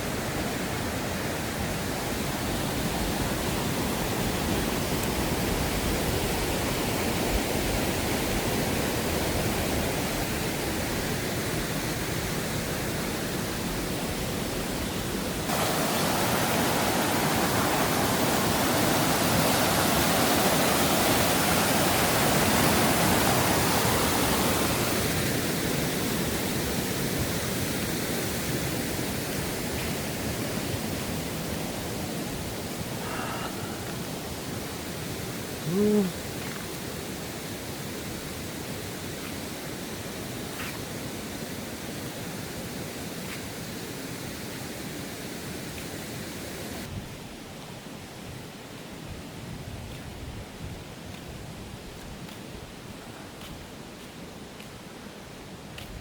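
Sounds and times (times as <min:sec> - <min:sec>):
mountain stream rushing: 0:00.0 - 0:50.0.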